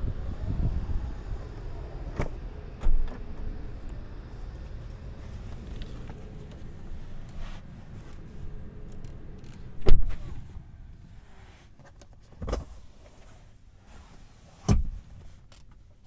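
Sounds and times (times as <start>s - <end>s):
low rumble: 0.0s - 11.5s
dull thumps inside a car: 14.6s - 15.3s.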